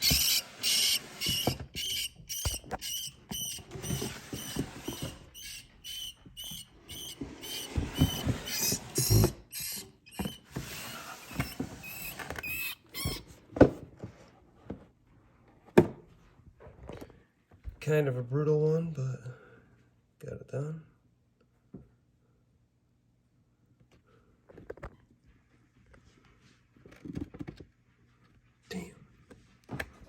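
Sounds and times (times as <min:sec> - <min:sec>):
rat squeaking in distress: 0:00.0 - 0:04.6, 0:05.3 - 0:10.4, 0:11.4 - 0:13.2.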